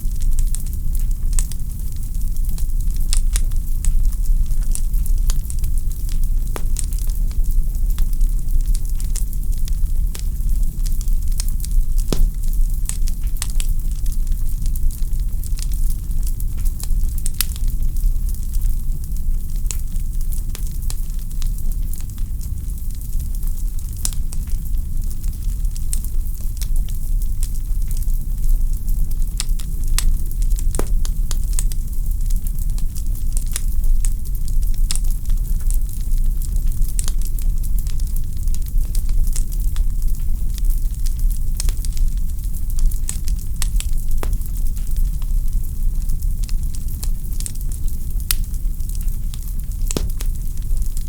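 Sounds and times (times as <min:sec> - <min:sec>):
low rumble of flames: 0:00.0 - 0:51.0
wood fire crackling: 0:00.0 - 0:51.0.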